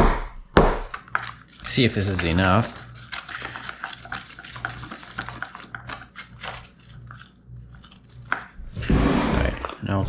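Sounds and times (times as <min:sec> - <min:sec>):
low hum: 0:08.5 - 0:10.0.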